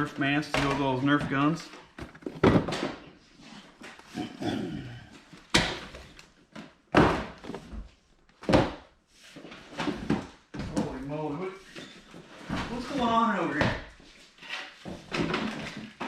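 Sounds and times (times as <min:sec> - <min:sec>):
boxed toys thudding onto pile: 0:02.0 - 0:03.0.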